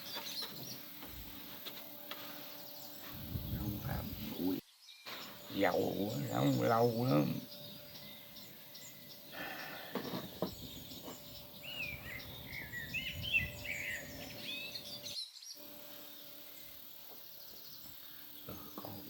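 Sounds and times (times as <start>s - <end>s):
bird chirping: 0.0s - 19.0s
faint outdoor background noise: 0.0s - 19.0s.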